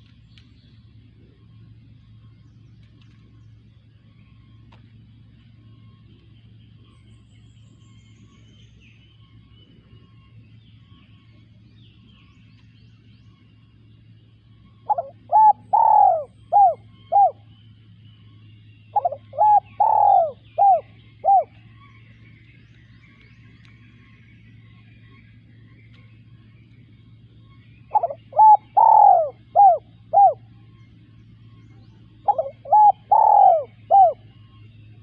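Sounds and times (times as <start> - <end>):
faint bird chirps: 0.0 - 35.0
low steady hum: 0.0 - 35.0
dove cooing: 14.7 - 17.5, 18.9 - 21.9, 27.5 - 30.9, 32.0 - 35.0.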